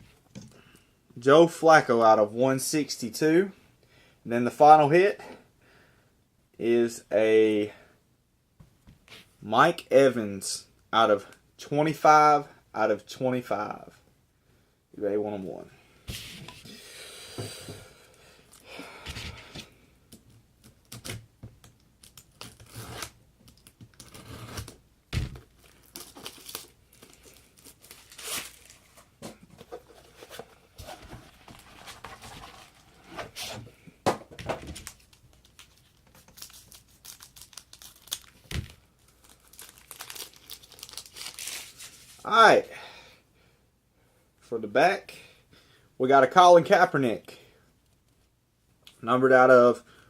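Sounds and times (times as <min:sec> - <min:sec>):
card packaging torn and crinkled: 0:22.0 - 0:24.8, 0:25.4 - 0:29.0, 0:34.8 - 0:42.2.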